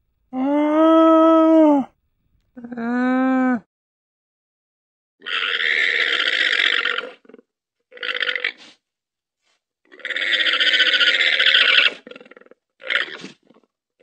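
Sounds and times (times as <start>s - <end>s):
llama calling harshly: 9.9s - 12.1s.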